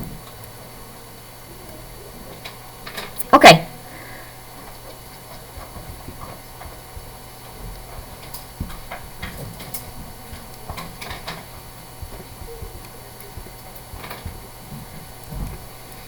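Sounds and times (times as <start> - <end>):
steady low hum: 0.0 - 16.0
faint clicks and taps: 4.6 - 16.0.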